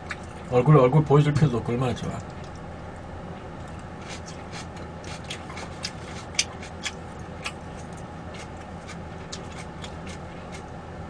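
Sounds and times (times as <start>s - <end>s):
person chewing food: 0.0s - 0.5s, 3.6s - 10.8s.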